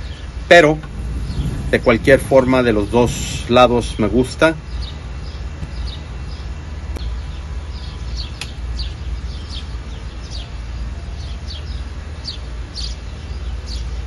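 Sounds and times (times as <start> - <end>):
low rumble: 0.0 - 10.8
small birds chirping: 0.0 - 14.0
sharp clicks: 8.4 - 8.6.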